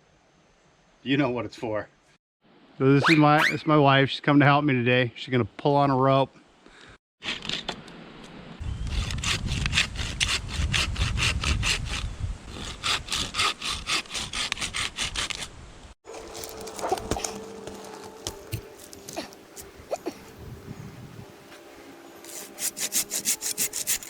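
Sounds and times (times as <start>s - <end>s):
rhythmic rasping on wood: 8.9s - 15.5s, 22.3s - 24.0s.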